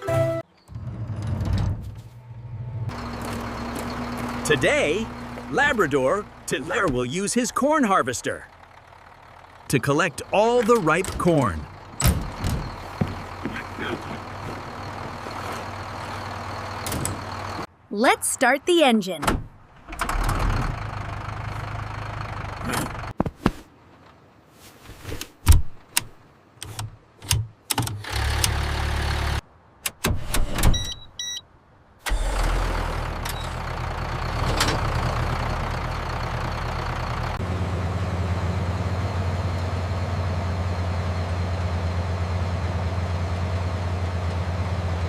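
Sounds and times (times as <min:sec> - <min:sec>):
harvester engine starting: 0:00.1 - 0:17.7, 0:19.8 - 0:23.1, 0:27.7 - 0:29.4, 0:32.0 - 0:45.0
short beeps: 0:30.7 - 0:31.4.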